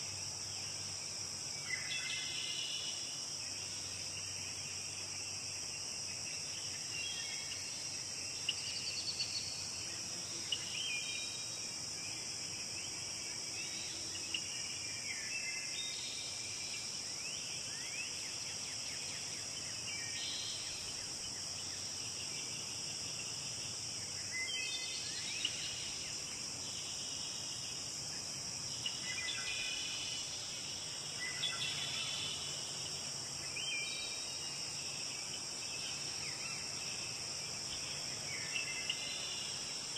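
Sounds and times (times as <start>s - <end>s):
high insect trill: 0.0s - 39.9s.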